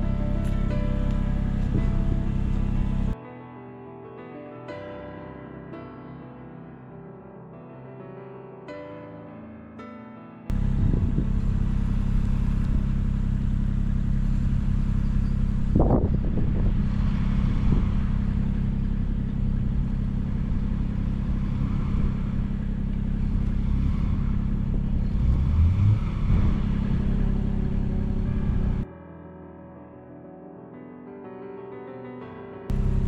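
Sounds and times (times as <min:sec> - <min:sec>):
engine running: 0:00.0 - 0:03.2, 0:10.5 - 0:28.8, 0:32.7 - 0:33.0.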